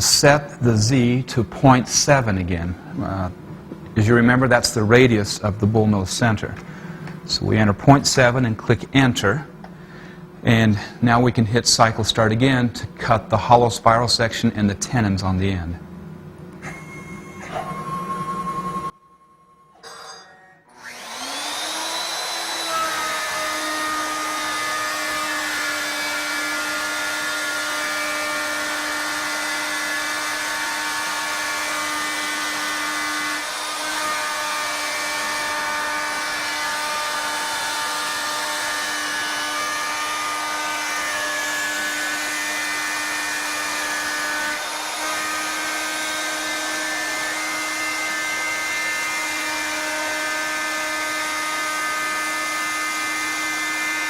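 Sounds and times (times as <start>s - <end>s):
router motor whining: 20.7s - 54.0s.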